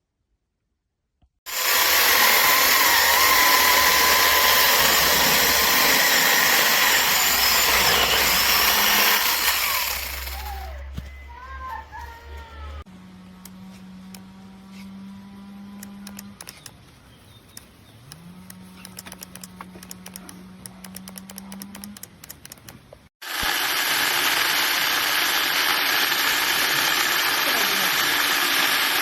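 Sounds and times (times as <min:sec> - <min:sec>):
electric chainsaw motor running: 0:01.5 - 0:10.8, 0:13.1 - 0:16.4, 0:23.2 - 0:29.0
sharp clicks: 0:15.8 - 0:23.1.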